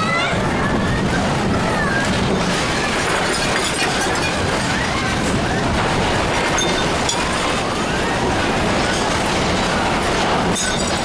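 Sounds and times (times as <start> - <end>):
earthquake rumble: 0.0 - 11.0
objects rattling and clinking: 2.1 - 11.0.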